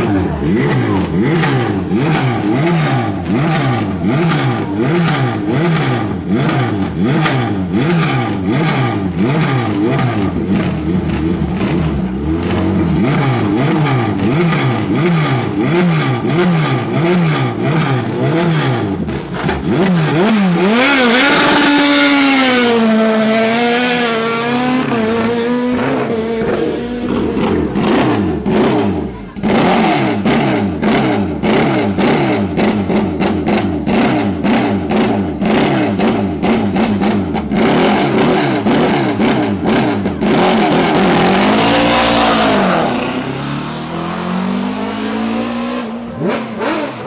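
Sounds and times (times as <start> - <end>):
race car engine revving: 0.0 - 47.0.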